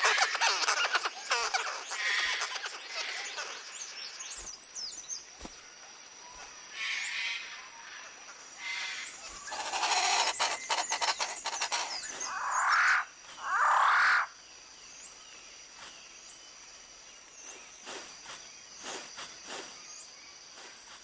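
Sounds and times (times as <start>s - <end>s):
harsh animal calls: 0.0s - 3.7s, 8.6s - 14.3s
high insect whine: 0.0s - 21.0s.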